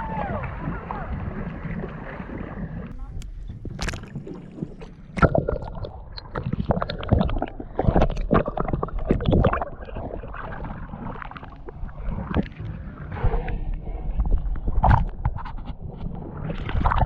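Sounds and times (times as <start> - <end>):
steady low rumble: 0.0 - 6.4, 11.2 - 16.4.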